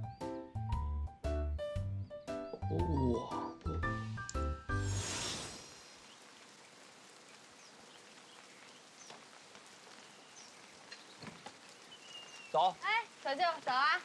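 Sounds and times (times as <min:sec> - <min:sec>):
faint ambient hiss: 0:02.9 - 0:14.0.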